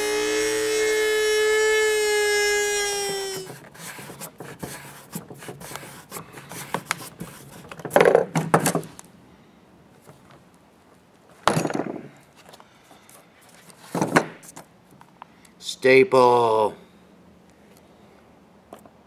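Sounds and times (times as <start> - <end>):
rotary tool high whine: 0.0 - 4.3.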